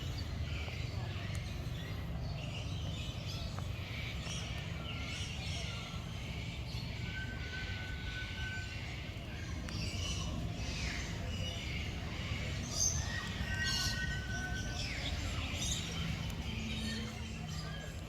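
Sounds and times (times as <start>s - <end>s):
birds chirping and calling: 0.0s - 18.0s.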